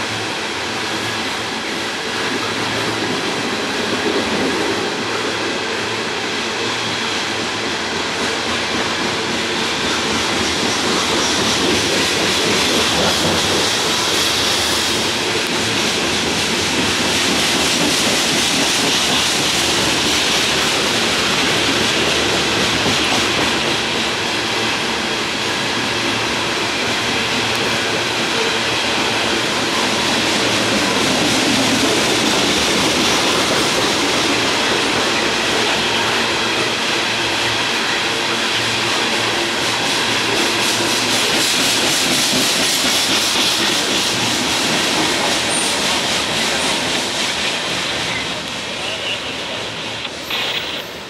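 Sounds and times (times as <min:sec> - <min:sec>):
steel train wheels on rails: 0:00.0 - 0:51.0.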